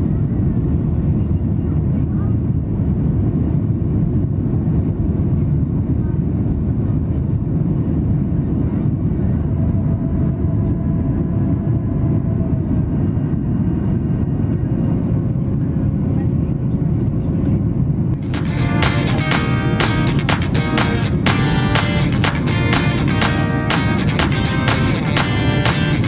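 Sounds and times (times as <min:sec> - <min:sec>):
jet engine cabin rumble: 0:00.0 - 0:18.3.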